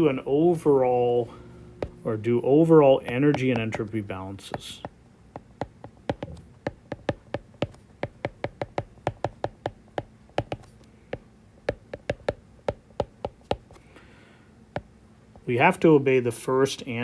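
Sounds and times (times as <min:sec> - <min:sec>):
pen tapping on a surface: 0:03.1 - 0:13.8.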